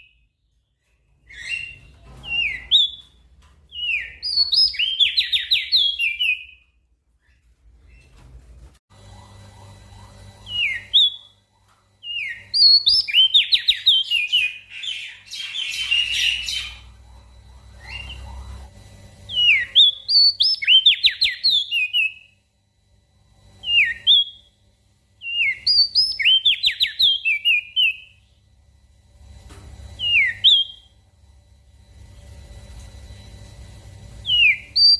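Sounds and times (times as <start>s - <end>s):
bird whistling descending notes: 12.1s - 18.7s.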